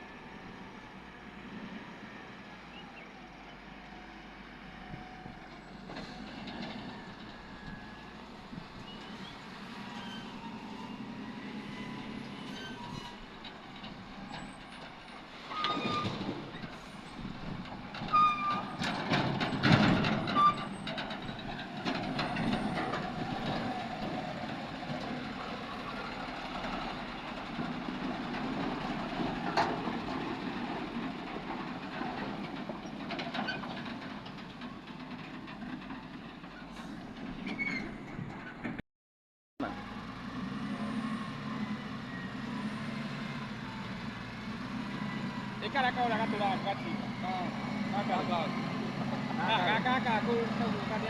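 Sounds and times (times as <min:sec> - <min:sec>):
heavy diesel machinery working: 0:00.0 - 0:38.8, 0:39.6 - 0:51.0
short squeals: 0:08.9 - 0:13.4, 0:15.4 - 0:17.1, 0:18.1 - 0:19.0.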